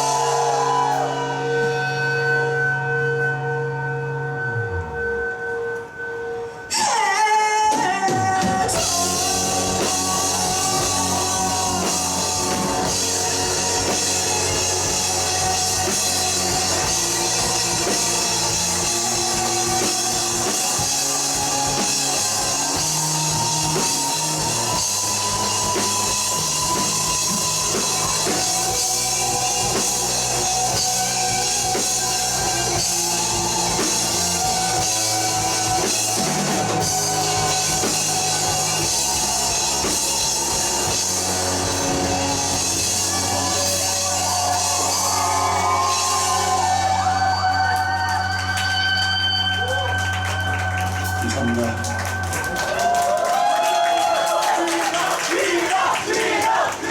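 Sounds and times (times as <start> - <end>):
drum kit playing steadily: 0.0 - 3.2, 7.0 - 54.6
bass guitar: 0.0 - 7.0, 8.0 - 54.2
sustained electric guitars: 7.7 - 52.9.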